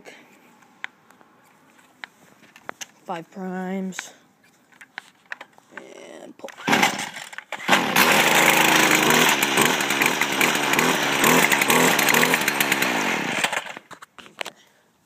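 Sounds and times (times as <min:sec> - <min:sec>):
starter cord pull: 0:06.5 - 0:14.0
small two-stroke engine running: 0:06.7 - 0:13.9.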